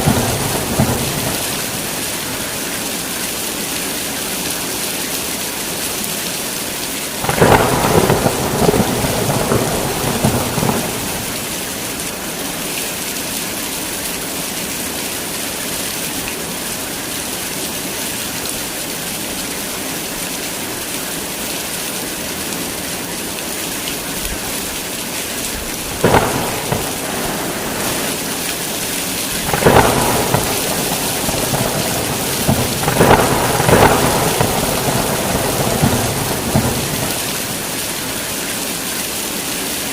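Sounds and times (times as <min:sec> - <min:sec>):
thunder cracking and rumbling: 0:00.0 - 0:02.6, 0:07.2 - 0:11.9, 0:25.6 - 0:38.2
heavy rain falling: 0:00.0 - 0:39.9.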